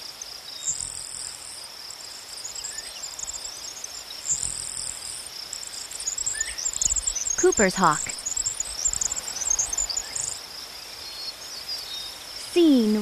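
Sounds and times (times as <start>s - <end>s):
insects trilling: 0.0s - 13.0s
high chattering chirps: 6.0s - 10.4s.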